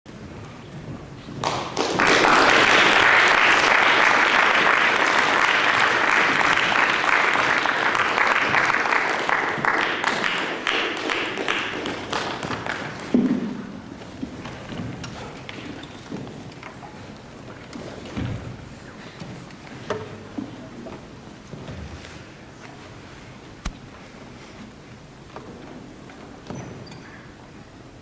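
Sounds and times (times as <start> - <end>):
audience applauding: 1.4 - 13.2.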